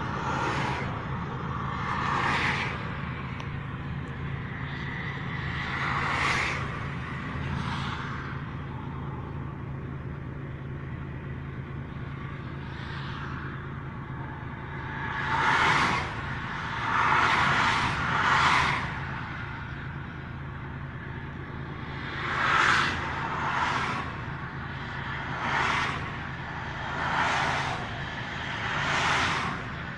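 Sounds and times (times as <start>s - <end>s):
steady low hum: 0.0s - 29.9s
vehicles whooshing past: 0.0s - 29.9s.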